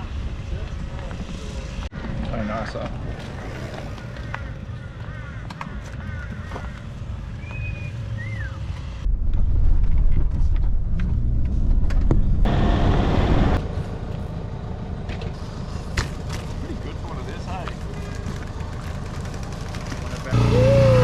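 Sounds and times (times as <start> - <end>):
loud low rumble: 9.1 - 14.6.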